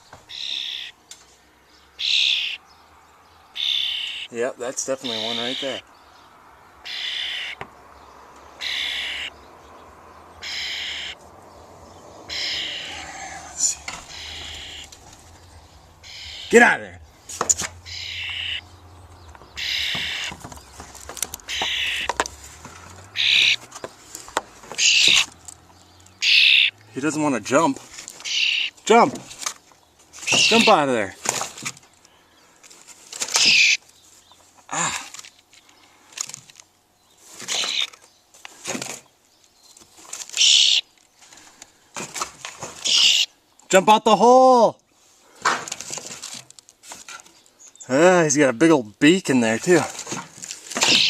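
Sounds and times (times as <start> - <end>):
nestling bird hissing calls: 2.0 - 2.6, 8.6 - 9.4, 10.4 - 11.2, 12.3 - 16.6, 17.2 - 18.7, 23.2 - 23.6, 24.8 - 25.3, 26.2 - 26.8, 40.4 - 40.8, 42.8 - 43.3
young bird hissing: 12.3 - 14.9
small knocks: 19.1 - 25.8.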